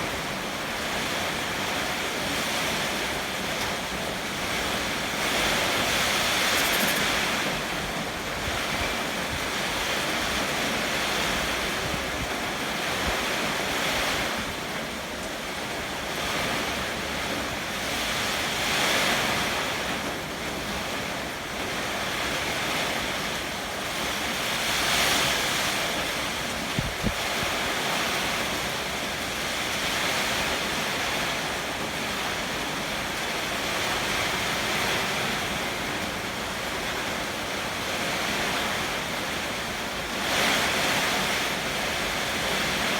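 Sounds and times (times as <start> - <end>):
strong wind gusting: 2.6 - 13.2.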